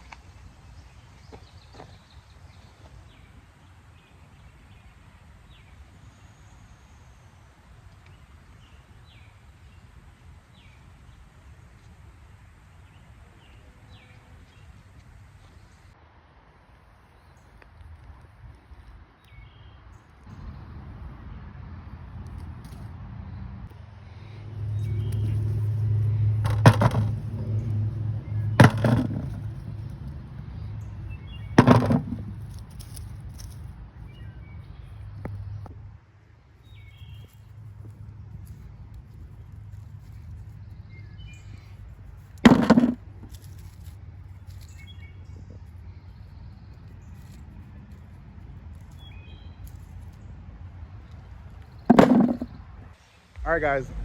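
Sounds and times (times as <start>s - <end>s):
sharp knocks: 26.4s - 27.6s, 28.5s - 29.6s, 31.6s - 32.4s, 42.5s - 43.0s, 51.9s - 52.6s
low rumble: 52.4s - 54.0s.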